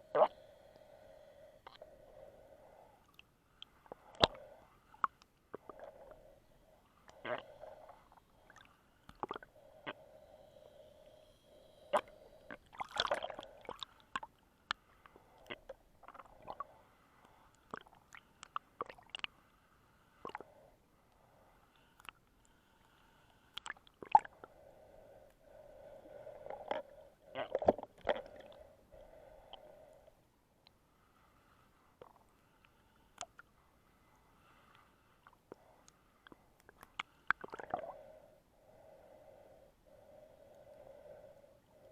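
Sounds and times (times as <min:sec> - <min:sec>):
muffled underwater water sounds: 0:00.0 - 0:19.4, 0:32.0 - 0:41.9.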